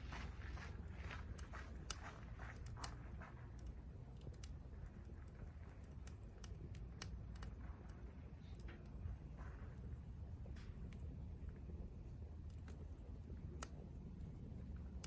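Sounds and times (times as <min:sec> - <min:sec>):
faint low rumble: 0:00.0 - 0:15.0
campfire crackling and popping: 0:00.2 - 0:15.0.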